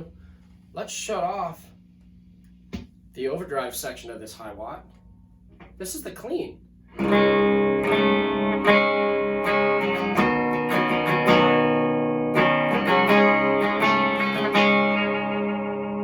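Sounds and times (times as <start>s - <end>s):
clean electric guitar chords: 6.9s - 16.0s.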